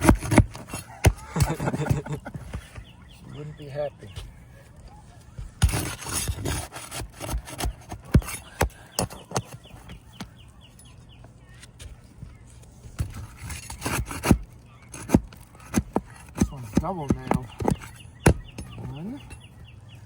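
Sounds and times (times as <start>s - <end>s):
hammer driving nails into shingles: 0.0s - 2.1s, 5.6s - 9.6s, 13.0s - 18.8s
bird chirping: 0.0s - 20.0s.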